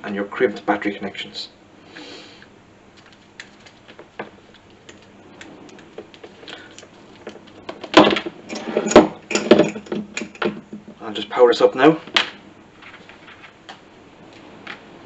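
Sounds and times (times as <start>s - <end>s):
rustling and clattering: 2.9s - 11.0s, 12.0s - 14.9s.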